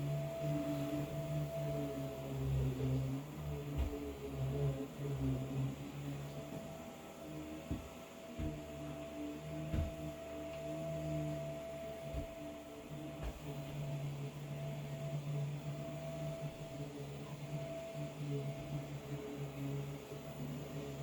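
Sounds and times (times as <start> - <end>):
muffled vacuum cleaner: 0.0 - 21.0
faint low bumps: 6.4 - 13.9.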